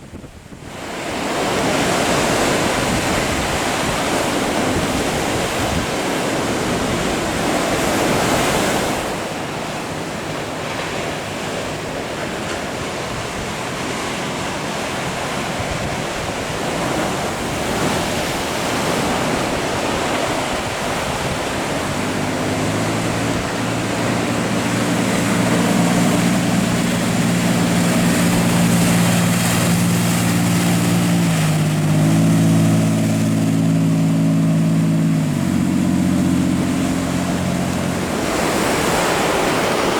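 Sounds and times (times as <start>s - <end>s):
ocean surf breaking: 0.0s - 39.9s
engine humming: 11.7s - 39.9s.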